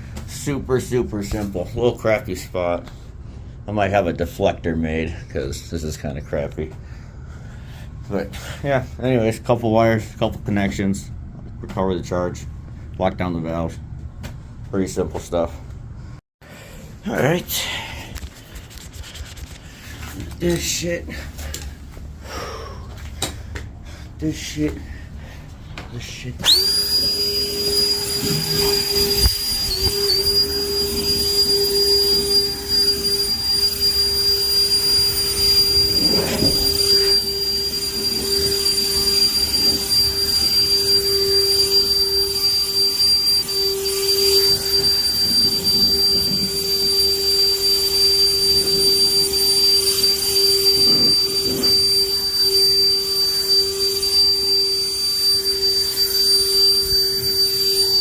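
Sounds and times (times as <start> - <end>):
electric motor whining: 26.4 - 58.0.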